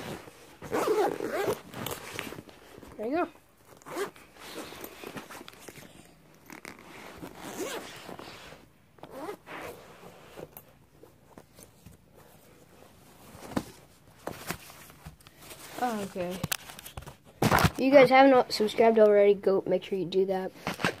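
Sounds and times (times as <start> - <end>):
zipper being pulled: 0.0 - 2.5, 3.7 - 10.6.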